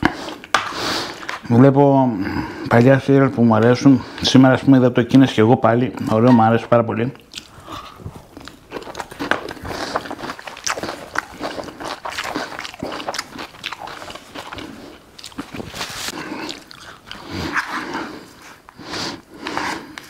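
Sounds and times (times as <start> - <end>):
wet chewing: 7.2 - 20.0.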